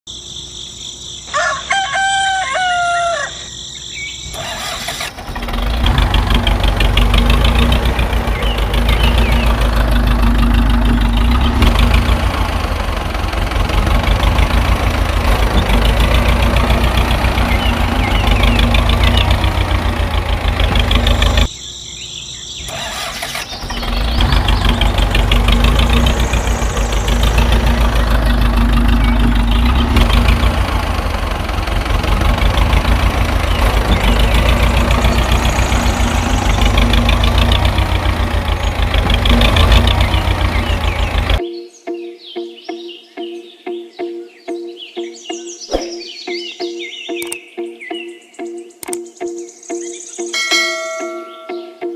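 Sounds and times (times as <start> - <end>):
rooster crowing: 1.3 - 3.5.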